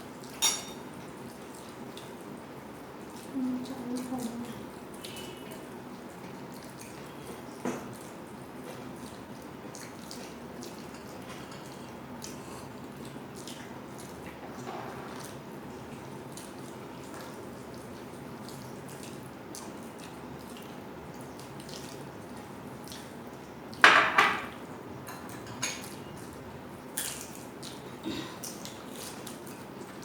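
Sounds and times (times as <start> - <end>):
dishes clattering: 0.4 - 0.8, 23.8 - 26.0
plates and utensils clinking: 0.4 - 0.8, 23.8 - 26.0.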